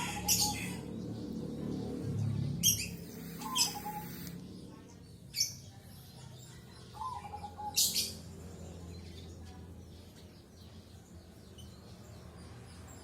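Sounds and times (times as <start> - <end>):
birds calling in sharp bursts: 0.0 - 1.3, 2.0 - 5.6
steady low hum: 0.0 - 5.2.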